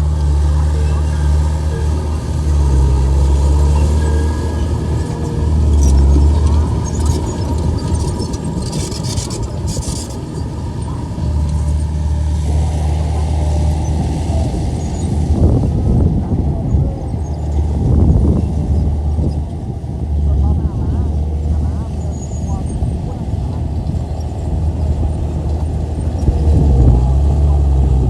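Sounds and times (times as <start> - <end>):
bulldozer diesel engine running: 0.0 - 28.0
high rattling and crackling: 0.5 - 15.4.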